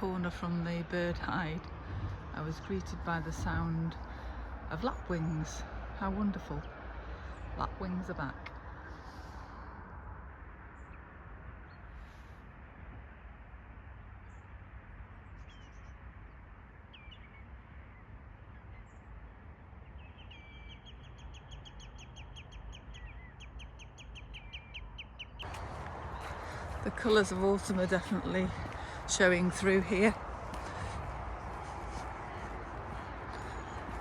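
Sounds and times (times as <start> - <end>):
distant traffic: 0.0 - 34.0
bird calls: 19.8 - 34.0
rapid run of short bird calls: 25.4 - 34.0.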